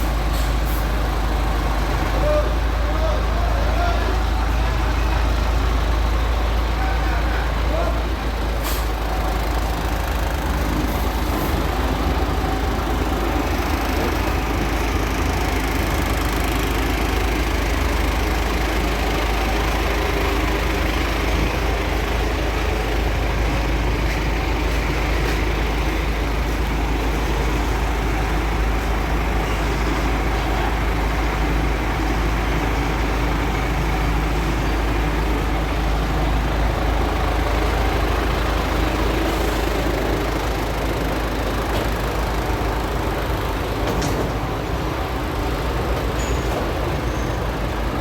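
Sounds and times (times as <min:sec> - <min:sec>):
diesel engine idling: 0:00.0 - 0:48.0.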